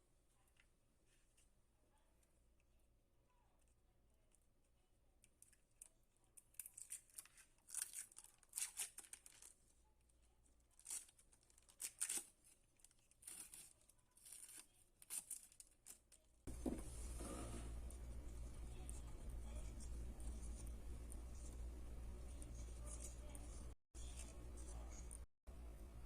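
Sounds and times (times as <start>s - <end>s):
rustling and crinkling: 5.4s - 25.3s.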